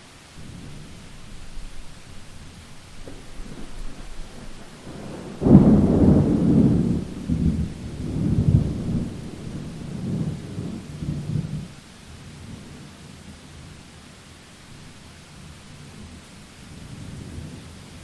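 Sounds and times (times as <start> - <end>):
steady rain hissing: 0.0 - 18.0
thunder rumbling: 0.4 - 11.8.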